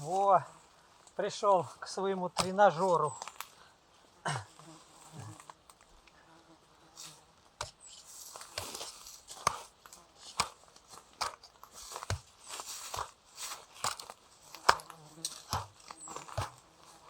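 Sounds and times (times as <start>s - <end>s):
rustling: 0.0s - 17.0s
crunches and clicks: 12.9s - 16.6s.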